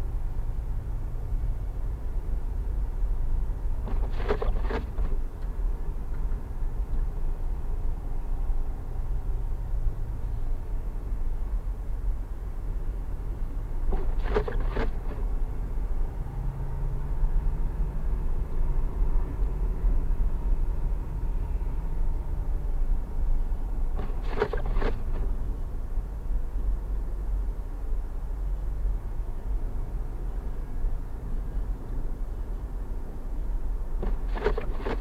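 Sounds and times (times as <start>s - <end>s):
car road and engine rumble: 0.0s - 35.0s.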